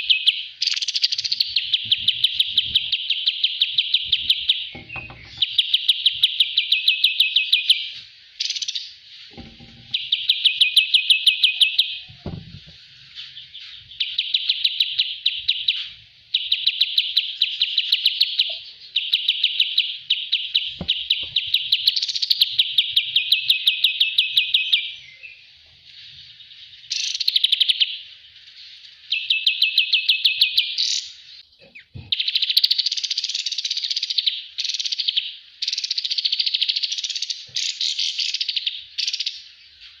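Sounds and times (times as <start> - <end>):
songbird singing rattling trills: 0.0 - 40.0
faint knocks: 4.7 - 5.5, 9.3 - 10.0.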